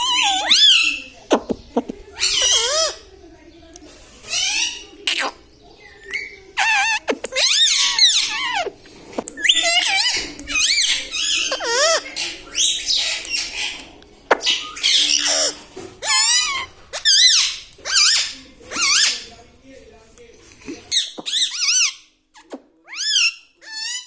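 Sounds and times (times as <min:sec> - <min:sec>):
parrot warbling calls: 0:00.0 - 0:01.1, 0:06.1 - 0:08.7, 0:09.4 - 0:13.7, 0:14.5 - 0:19.3.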